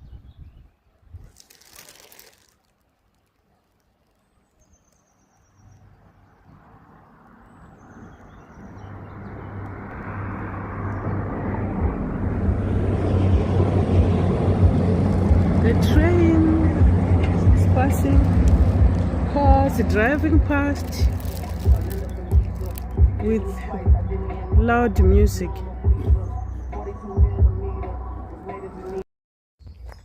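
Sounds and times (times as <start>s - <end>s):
train rumble: 9.7s - 25.2s.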